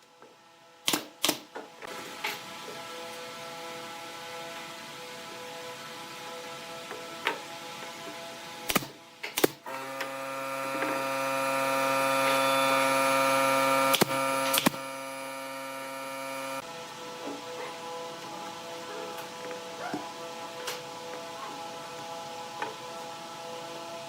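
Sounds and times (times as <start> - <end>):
sharp clicks: 8.7 - 9.6, 13.9 - 14.8
electric motor hum: 9.6 - 24.0.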